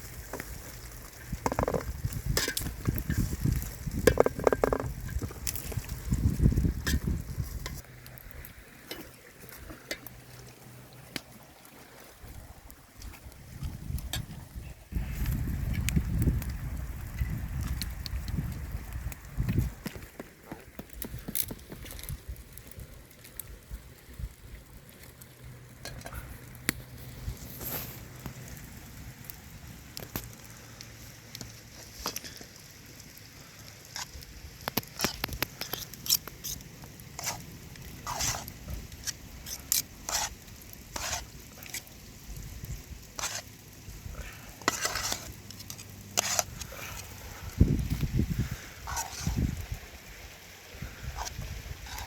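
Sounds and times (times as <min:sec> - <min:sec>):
utensil scraping a pan: 0:01.4 - 0:05.8, 0:34.8 - 0:41.8, 0:43.1 - 0:43.5, 0:44.6 - 0:47.2, 0:48.5 - 0:49.6, 0:51.1 - 0:52.0.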